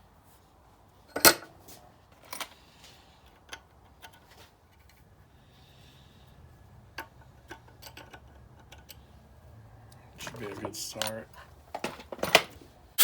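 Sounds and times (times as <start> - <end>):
metal tools clinking: 10.4 - 11.4.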